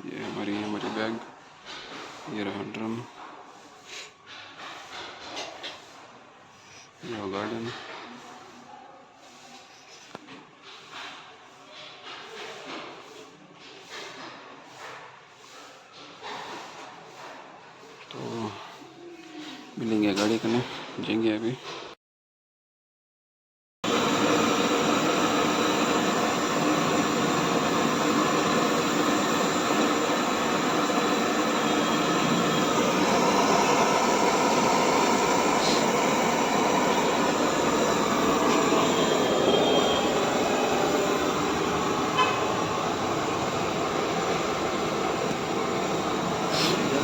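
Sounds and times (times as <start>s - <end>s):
vehicle road and engine noise: 35.5s - 47.0s.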